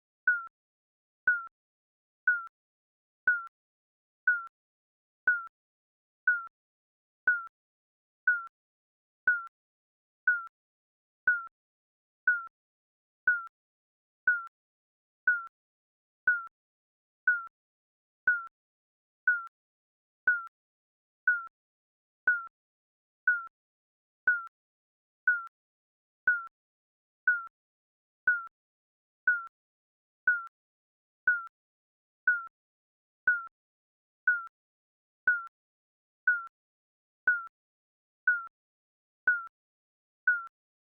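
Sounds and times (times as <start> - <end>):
countdown timer beeps: 5.3 - 5.5, 39.3 - 39.5.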